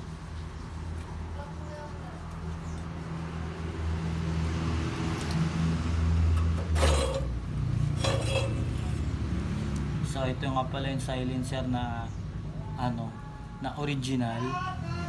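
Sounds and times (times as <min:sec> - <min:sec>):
vehicle engine humming: 0:03.1 - 0:12.7
short metallic clank: 0:06.4 - 0:07.4.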